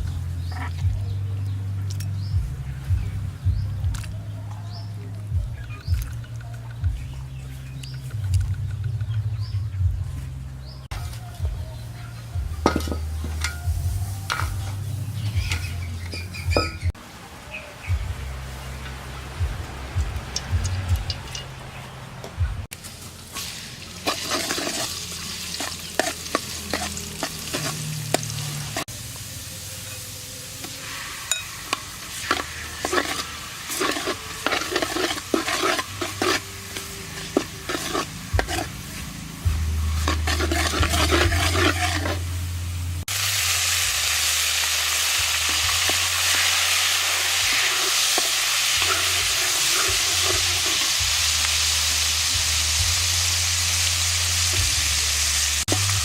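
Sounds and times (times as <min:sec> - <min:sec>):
food sizzling in hot oil: 0:12.6 - 0:22.0, 0:22.6 - 0:56.0.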